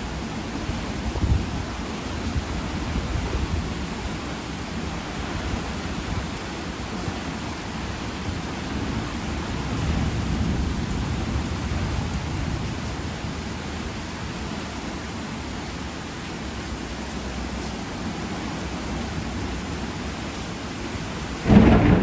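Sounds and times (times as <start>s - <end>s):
heavy rain hissing: 0.0s - 22.0s.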